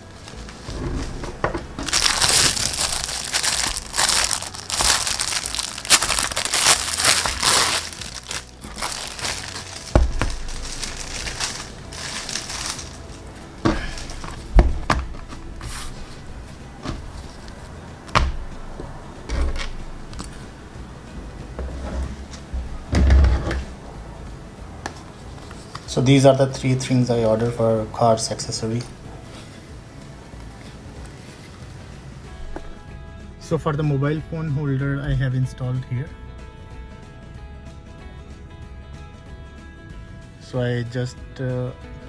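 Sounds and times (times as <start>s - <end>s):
plastic packaging crinkling: 0.0s - 22.9s.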